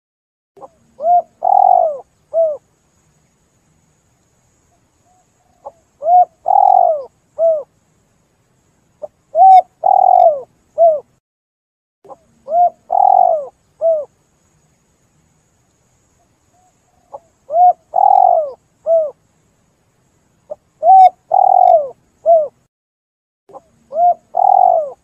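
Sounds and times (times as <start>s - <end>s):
dove cooing: 0.6s - 2.6s, 5.5s - 7.7s, 9.3s - 11.1s, 12.1s - 14.1s, 16.6s - 19.2s, 20.8s - 22.6s, 23.5s - 25.0s.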